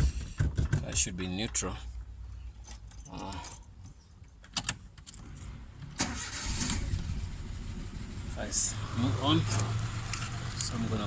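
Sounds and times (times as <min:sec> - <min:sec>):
car engine starting and running: 0:04.6 - 0:11.0.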